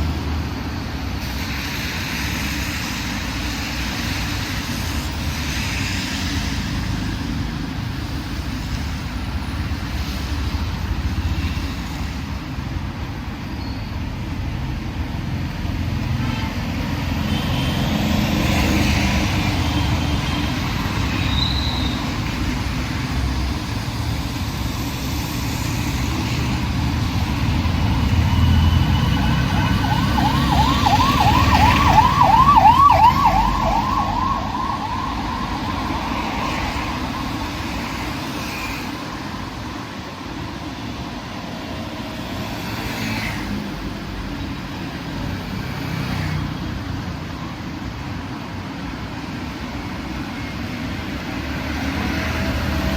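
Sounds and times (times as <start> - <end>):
road traffic: 0.0 - 52.9
fast yelping siren: 28.5 - 37.7.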